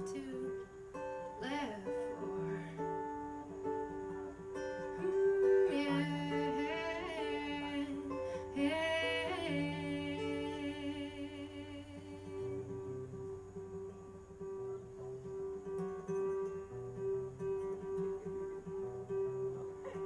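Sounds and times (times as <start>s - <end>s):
wordless singing with vibrato: 0.0s - 0.6s, 1.4s - 3.2s, 4.8s - 12.8s
acoustic guitar accompaniment: 0.0s - 20.0s.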